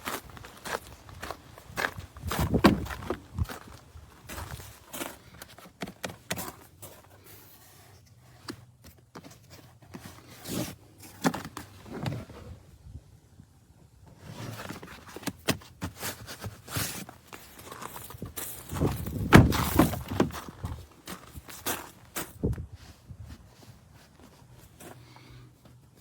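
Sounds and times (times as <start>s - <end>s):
rubber mats knocking and scraping: 2.0s - 7.3s, 14.2s - 26.0s.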